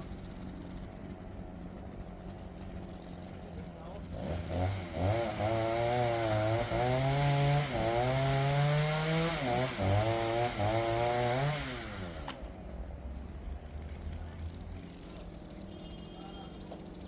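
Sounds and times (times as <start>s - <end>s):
chainsaw cutting through log: 3.9s - 12.5s.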